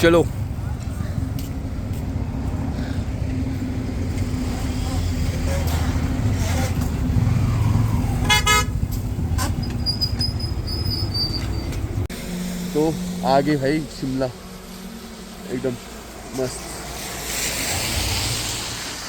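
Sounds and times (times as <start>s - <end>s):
motorcycle engine rumble: 0.0s - 17.0s
vehicle horn toot: 8.2s - 8.8s.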